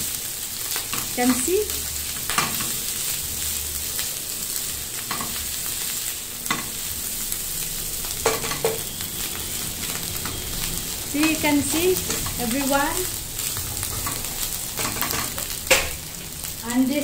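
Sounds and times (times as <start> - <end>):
rice sizzling in frying pan: 0.0 - 17.0
spatula scraping and knocking pan: 8.2 - 8.9, 13.9 - 16.0.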